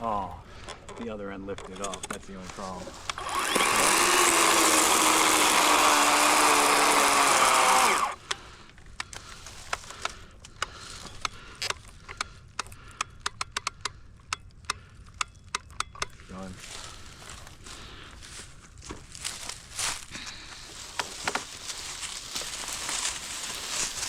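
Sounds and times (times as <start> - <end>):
electric chainsaw cutting log: 2.6 - 8.2
sharp clicks and snaps: 8.2 - 16.2.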